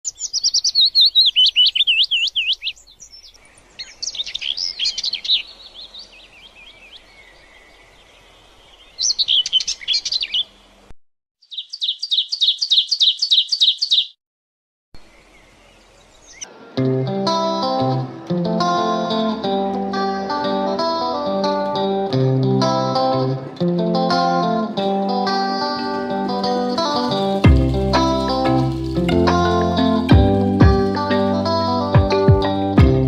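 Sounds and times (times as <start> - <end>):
songbirds chirping and singing: 0.1 - 10.8, 11.4 - 14.1, 15.0 - 19.6.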